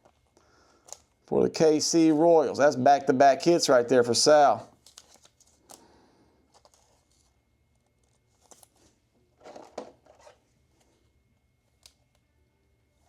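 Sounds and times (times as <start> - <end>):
trading cards handled: 4.8 - 11.1.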